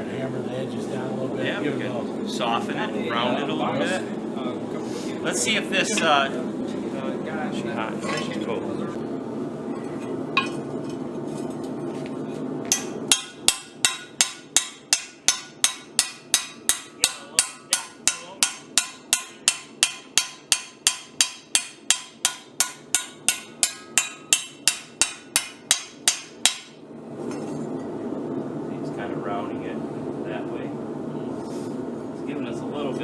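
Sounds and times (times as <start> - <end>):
steady low hum: 0.0 - 33.0
hammer striking steel on anvil: 12.7 - 26.8.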